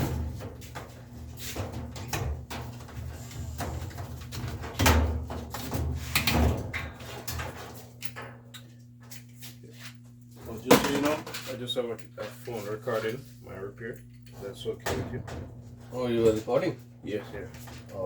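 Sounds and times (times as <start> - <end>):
knocks and thumps of parts: 0.0 - 8.2, 14.4 - 15.9.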